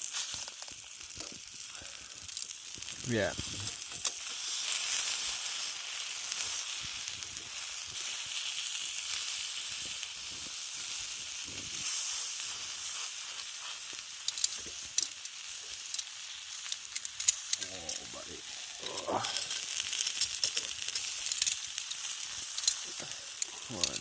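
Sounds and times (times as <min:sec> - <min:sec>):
chicken sizzling on hot rock: 0:00.0 - 0:24.0
sharp pops: 0:18.9 - 0:24.0.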